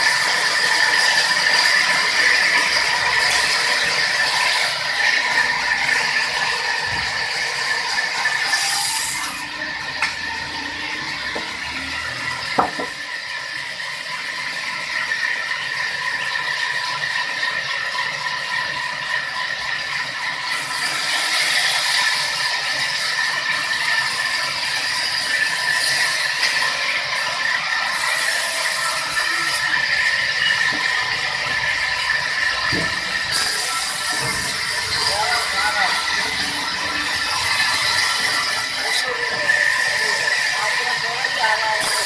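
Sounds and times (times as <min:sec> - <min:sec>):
sawmill saw whining: 0:00.0 - 0:42.0.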